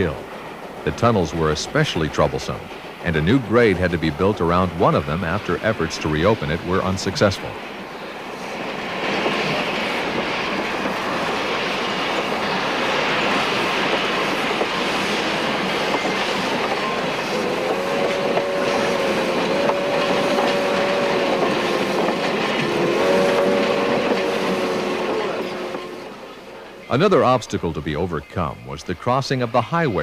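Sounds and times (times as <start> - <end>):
train rumbling along track: 0.0 - 30.0
locomotive whistle blasts: 17.5 - 21.8, 22.7 - 26.3.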